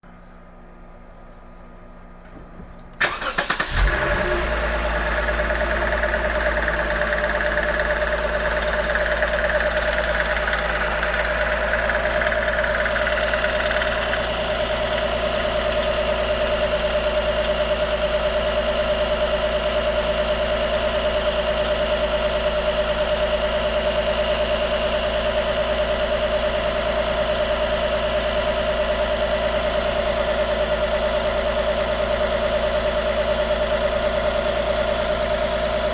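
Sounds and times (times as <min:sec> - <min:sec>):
car starter cranking: 0:02.9 - 0:14.0
car engine idling: 0:03.0 - 0:35.9.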